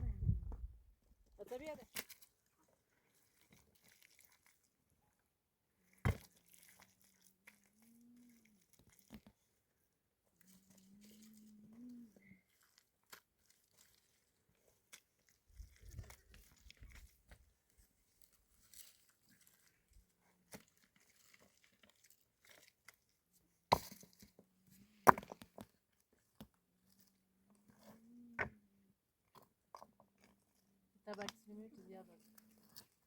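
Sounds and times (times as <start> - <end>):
rustling and handling noises: 10.2 - 28.0.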